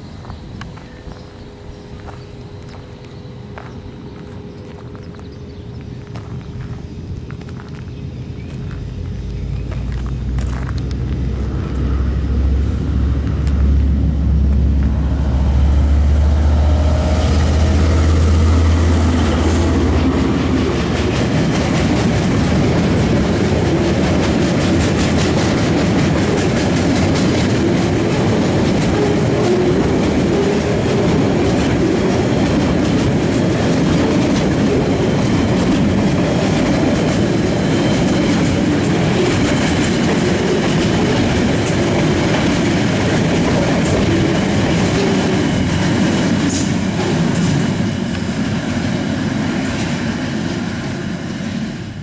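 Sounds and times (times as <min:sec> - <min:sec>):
train rumbling and rattling: 0:00.0 - 0:52.0
wheels clicking over rail joints: 0:19.1 - 0:48.5.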